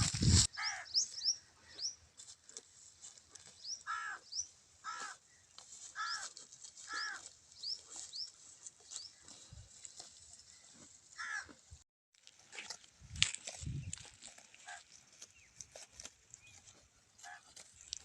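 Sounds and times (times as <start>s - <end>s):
harsh caw-like bird call: 0.5s - 1.0s, 3.8s - 5.2s.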